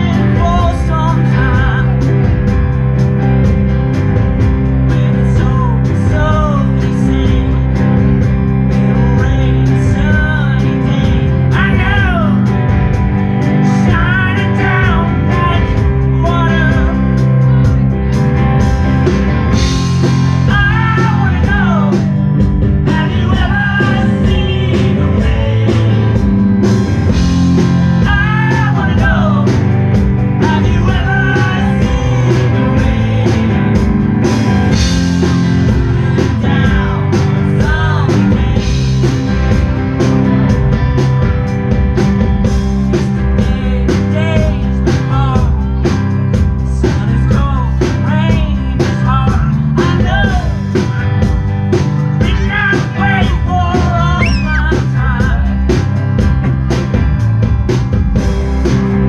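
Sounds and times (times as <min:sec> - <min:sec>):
person singing: 0:00.0 - 0:02.2, 0:04.8 - 0:08.0, 0:08.8 - 0:12.6, 0:13.6 - 0:17.8, 0:20.4 - 0:26.3, 0:28.0 - 0:33.9, 0:35.8 - 0:39.1, 0:42.9 - 0:45.9, 0:46.6 - 0:51.0, 0:52.1 - 0:55.7
rock band playing: 0:00.0 - 0:59.0.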